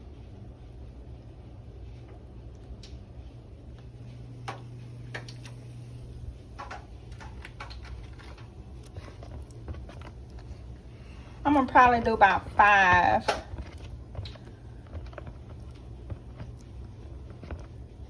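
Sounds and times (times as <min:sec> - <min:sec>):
low steady hum: 0:00.0 - 0:18.0
oil crackles and pops: 0:03.7 - 0:18.0.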